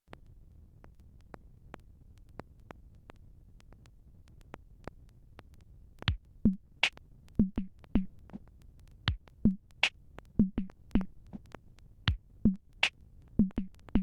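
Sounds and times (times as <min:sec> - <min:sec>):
drum machine beat: 0:06.1 - 0:06.6, 0:07.4 - 0:08.2, 0:09.1 - 0:09.6, 0:10.4 - 0:11.2, 0:12.1 - 0:12.6, 0:13.4 - 0:14.0.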